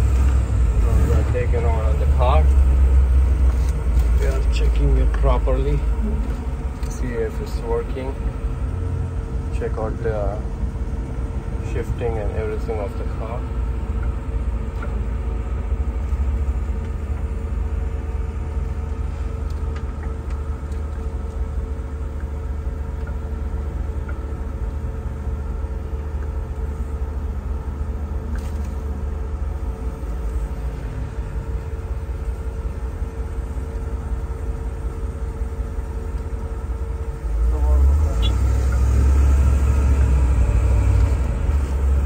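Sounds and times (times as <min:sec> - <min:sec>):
low rumble of engine and road: 0:00.0 - 0:42.0.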